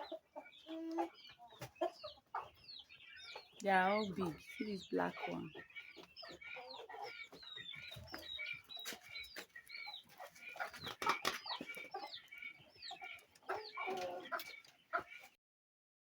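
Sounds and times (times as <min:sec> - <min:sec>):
chickens clucking: 0:00.0 - 0:15.4
chicks peeping: 0:00.0 - 0:15.4.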